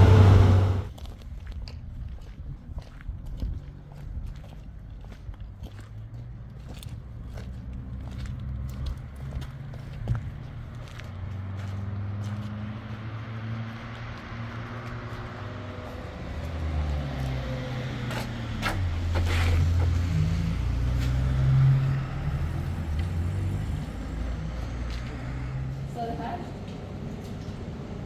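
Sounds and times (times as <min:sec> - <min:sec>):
vehicle engine humming: 0:00.0 - 0:00.9.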